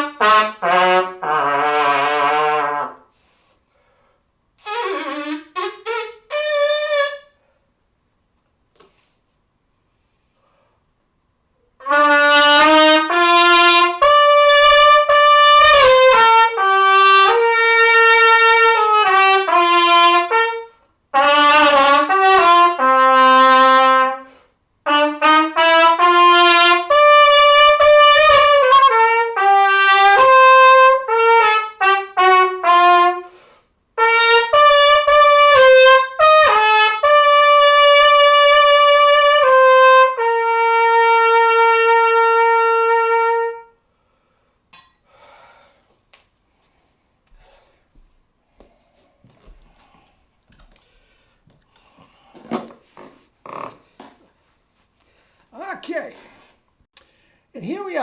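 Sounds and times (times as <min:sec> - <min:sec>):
solo trumpet melody: 0:00.0 - 0:03.2, 0:04.6 - 0:07.4, 0:11.8 - 0:43.8.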